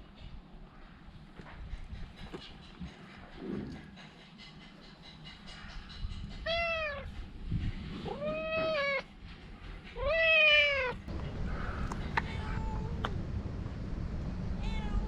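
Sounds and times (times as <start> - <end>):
cat meowing: 6.4 - 7.1, 8.0 - 9.1, 10.0 - 11.0, 12.1 - 13.1, 14.6 - 15.0.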